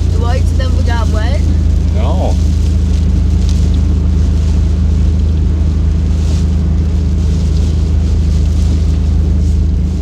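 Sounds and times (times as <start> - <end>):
car cabin drone: 0.0 - 10.0
rain and tyres on wet road: 0.0 - 10.0.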